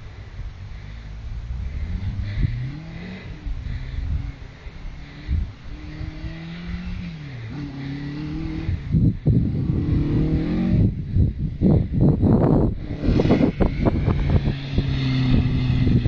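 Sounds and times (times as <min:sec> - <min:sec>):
rally car engine revving: 0:00.9 - 0:16.0.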